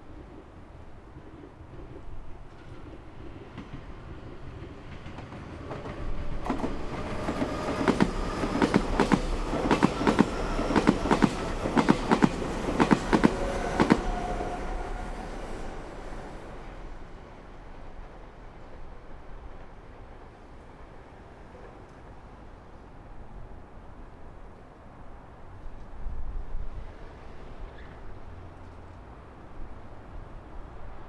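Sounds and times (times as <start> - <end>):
faint train whine: 0.0 - 31.0
wheels clacking over rail joints: 4.6 - 17.0.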